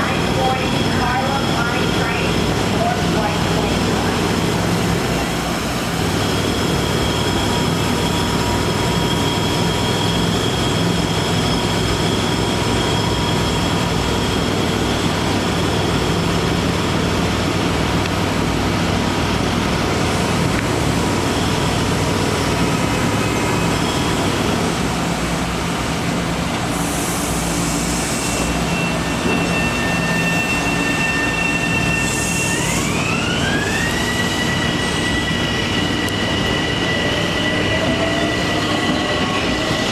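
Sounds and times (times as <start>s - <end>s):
electric train rumbling: 0.0s - 39.9s
air hiss bursts: 26.6s - 28.6s.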